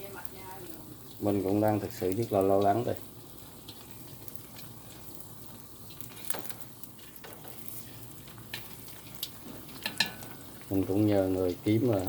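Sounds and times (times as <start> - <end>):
rice cake sizzling in oil: 0.0 - 12.0.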